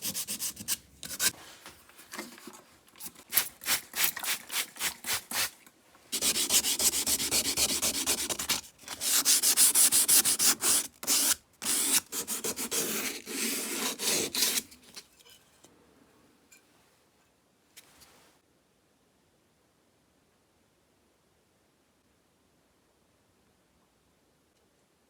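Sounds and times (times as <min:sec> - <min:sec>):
sandpaper scraping: 0:00.0 - 0:01.4, 0:06.1 - 0:14.9.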